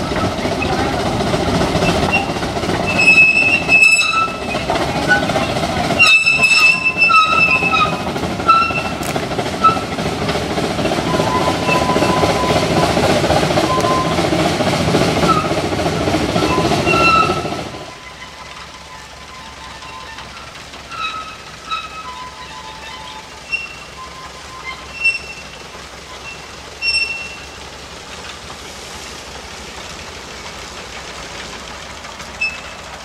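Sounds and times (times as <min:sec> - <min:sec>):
train wheels rumbling on rail: 0:00.0 - 0:33.0
high-pitched wheel squeals: 0:01.8 - 0:10.0, 0:10.9 - 0:14.3, 0:15.2 - 0:15.7, 0:16.4 - 0:27.7, 0:32.3 - 0:33.0.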